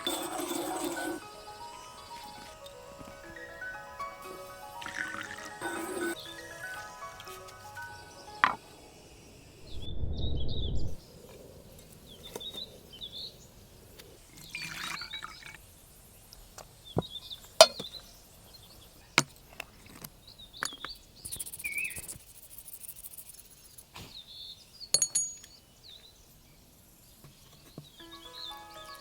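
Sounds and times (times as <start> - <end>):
small birds chirping: 0.0 - 4.8, 5.5 - 29.0
hard objects clinking: 25.0 - 25.6.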